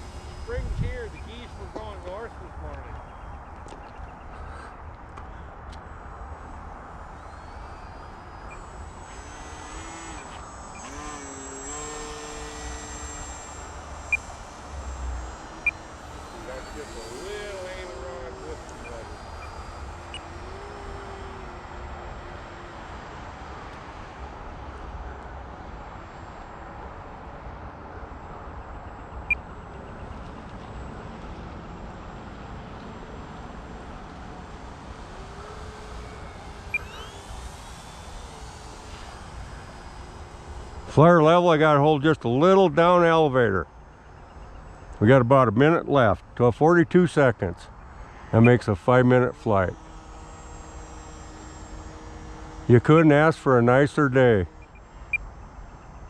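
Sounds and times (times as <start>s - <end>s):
wind rumble on microphone: 0.0s - 1.8s
model airplane motor whining: 0.0s - 56.0s.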